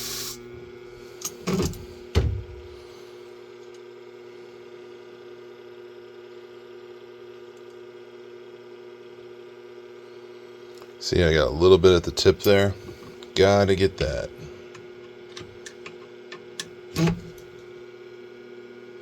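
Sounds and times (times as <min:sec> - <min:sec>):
machine motor humming: 0:11.1 - 0:17.6.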